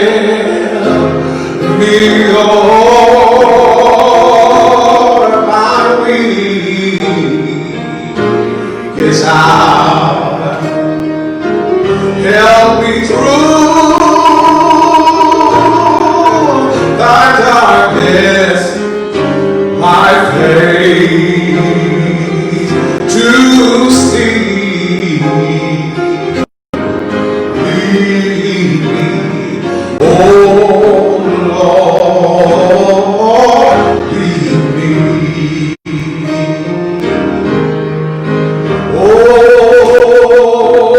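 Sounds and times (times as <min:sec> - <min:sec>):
gospel singing with instruments: 0:00.0 - 0:40.9.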